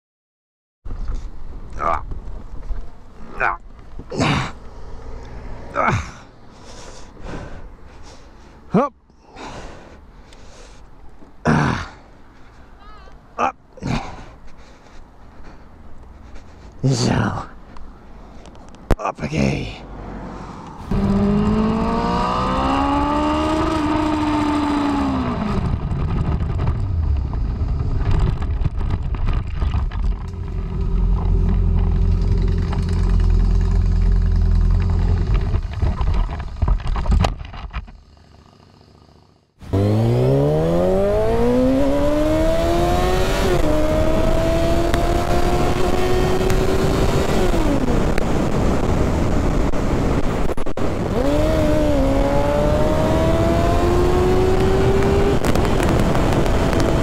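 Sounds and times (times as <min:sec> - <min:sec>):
wind and road noise: 0:00.9 - 0:57.0
motorcycle engine accelerating: 0:20.8 - 0:57.0.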